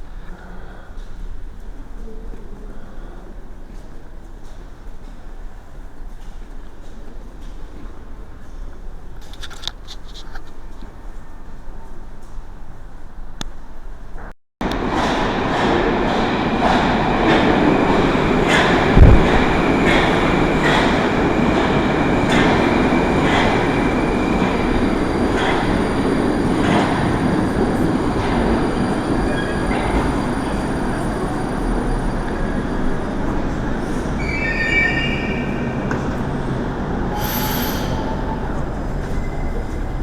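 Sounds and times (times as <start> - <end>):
train rumbling: 0.0 - 40.0
high-pitched brake squeals: 34.1 - 36.1, 37.1 - 40.0.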